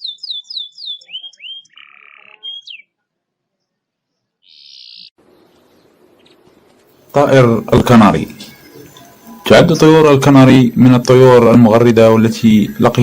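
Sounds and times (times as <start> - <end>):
songbird singing: 0.0 - 13.0
faint hiss: 5.2 - 13.0.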